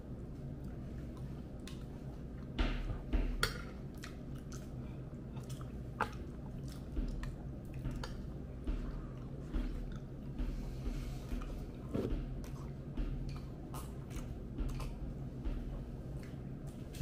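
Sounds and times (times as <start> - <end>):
faint low hum: 0.0 - 17.0
chewing with wet mouth clicks: 0.5 - 2.5, 3.4 - 8.5, 13.3 - 15.1
dull low thumps: 6.9 - 13.7, 14.4 - 16.2.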